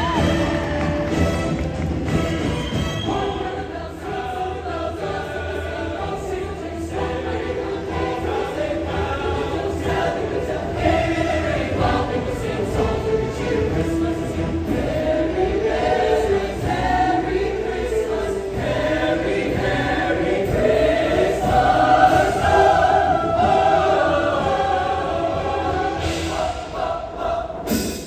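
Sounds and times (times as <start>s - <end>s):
choir singing: 0.0s - 28.0s.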